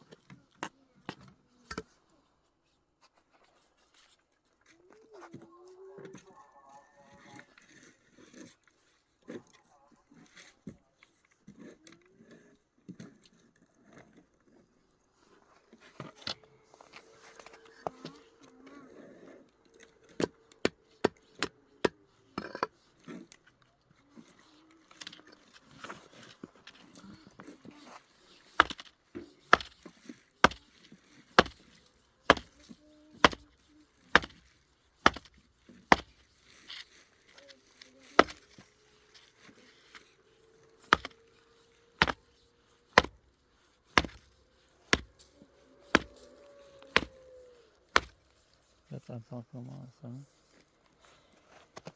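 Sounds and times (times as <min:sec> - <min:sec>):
sharp chopping blows: 0:45.9 - 0:46.1, 0:46.9 - 0:47.2, 0:48.0 - 0:48.2
sharp knocks: 0:48.0 - 0:48.2.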